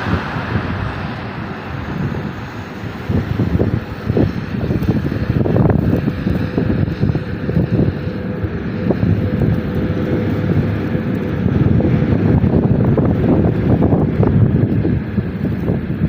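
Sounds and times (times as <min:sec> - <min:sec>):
freight train rumbling past: 0:00.0 - 0:16.0
wind buffeting microphone: 0:00.0 - 0:16.0.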